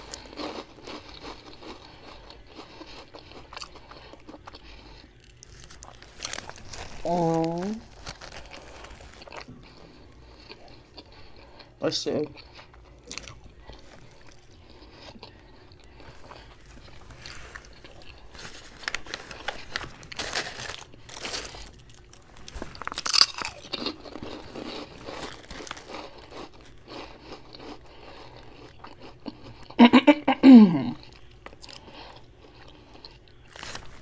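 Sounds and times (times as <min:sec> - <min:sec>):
chewing and crunching sandwich: 0:00.0 - 0:29.9, 0:30.9 - 0:34.0
person humming: 0:29.9 - 0:31.0.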